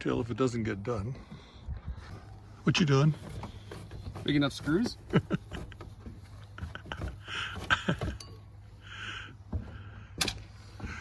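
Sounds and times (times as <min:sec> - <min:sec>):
metallic clinks of screws and tools: 0:08.1 - 0:08.5, 0:10.2 - 0:10.6.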